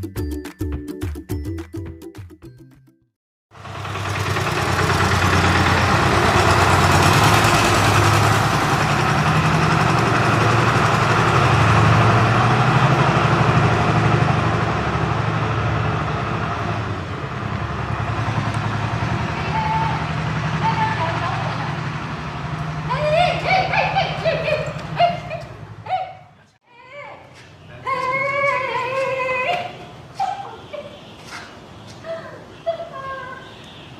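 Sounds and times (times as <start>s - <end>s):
music clip: 0.0s - 3.1s
idling engine rumble: 3.5s - 26.6s.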